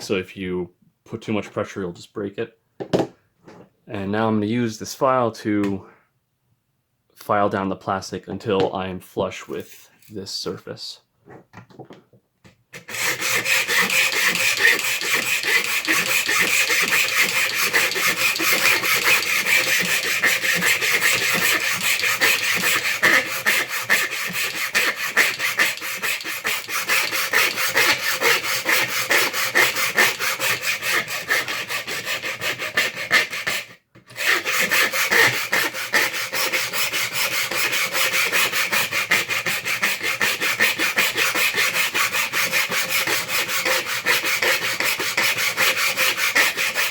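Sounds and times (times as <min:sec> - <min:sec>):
file rasping on hard plastic: 0:12.7 - 0:46.9.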